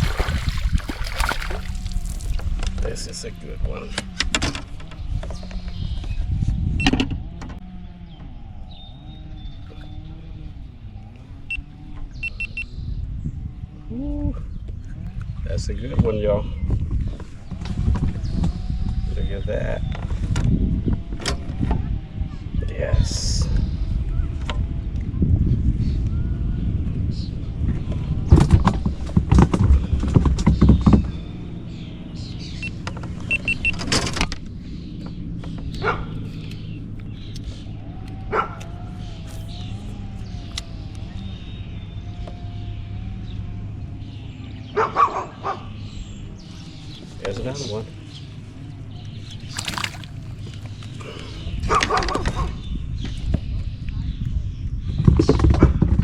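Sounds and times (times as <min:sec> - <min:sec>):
knocks and clatter on kayak: 0:00.0 - 0:02.9, 0:28.3 - 0:31.4, 0:49.2 - 0:51.0, 0:54.9 - 0:56.0
wind on microphone: 0:00.0 - 0:31.5, 0:49.2 - 0:56.0.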